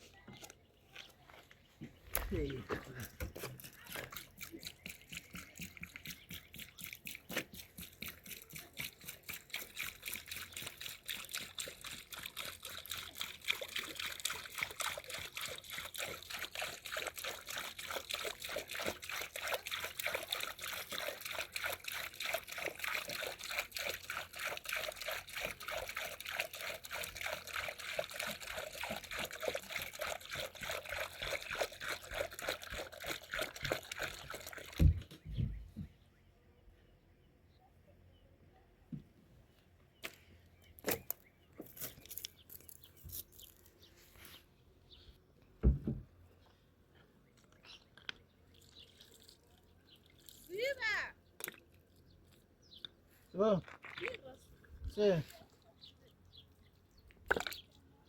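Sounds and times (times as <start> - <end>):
liquid trickling: 2.2 - 35.1, 47.7 - 52.8, 53.4 - 56.5.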